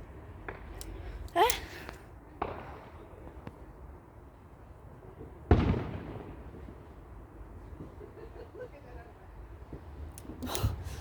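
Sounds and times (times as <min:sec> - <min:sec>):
faint firework crack: 0:05.2 - 0:07.0.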